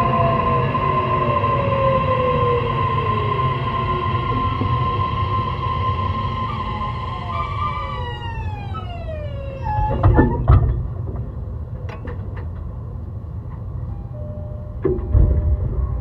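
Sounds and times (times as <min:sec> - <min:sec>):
electric train motor whining: 0:00.0 - 0:10.6
low rolling rumble with clicks: 0:00.0 - 0:16.0
train running gear knocks: 0:09.9 - 0:12.8.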